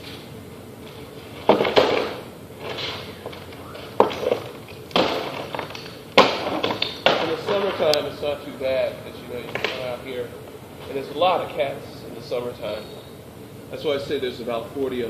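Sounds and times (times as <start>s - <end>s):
sharp knocks: 4.0s - 7.8s.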